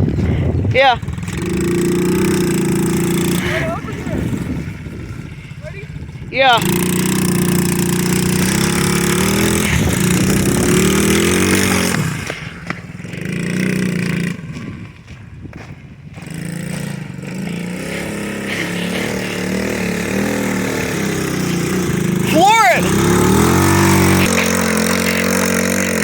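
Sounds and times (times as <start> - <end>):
pit bike engine revving: 0.0 - 26.0.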